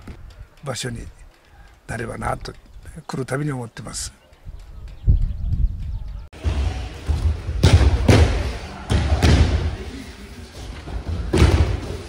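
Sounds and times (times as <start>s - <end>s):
bodies thudding onto mats: 10.8s - 12.0s.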